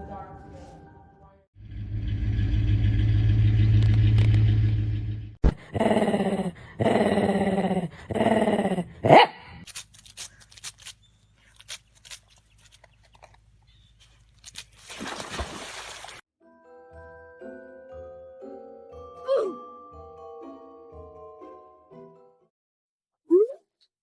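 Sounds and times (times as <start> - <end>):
dog growling: 5.5 - 9.3.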